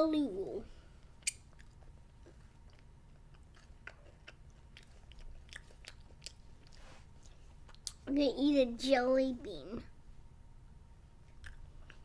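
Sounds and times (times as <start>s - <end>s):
child chewing candy: 1.1s - 8.1s, 11.2s - 12.0s.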